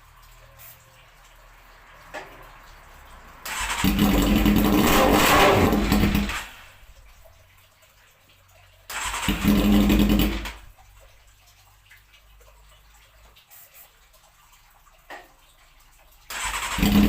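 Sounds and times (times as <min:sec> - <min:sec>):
motorcycle starter cranking: 0:03.4 - 0:06.7, 0:08.9 - 0:10.7, 0:16.3 - 0:17.0
motorcycle engine running: 0:03.6 - 0:06.5, 0:09.2 - 0:10.5, 0:16.6 - 0:17.0.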